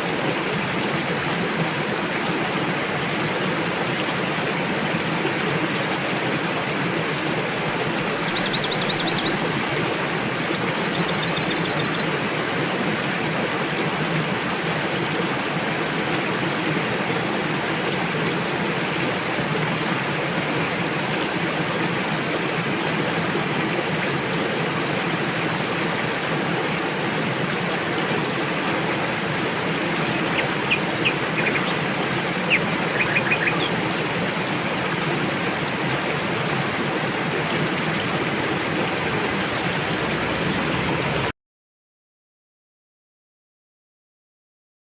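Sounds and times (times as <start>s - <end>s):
rushing river water: 0.0s - 41.3s
bird chirps: 7.8s - 9.4s, 10.8s - 12.1s, 30.1s - 31.8s, 32.5s - 33.8s
small bird trilling: 7.8s - 9.4s, 10.8s - 12.1s, 30.2s - 31.8s, 32.5s - 33.7s.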